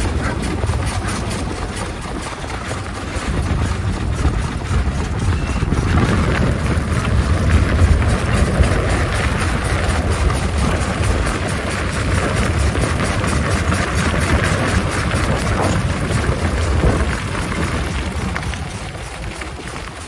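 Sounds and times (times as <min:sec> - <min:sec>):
single-cylinder engine running: 0:00.0 - 0:20.0.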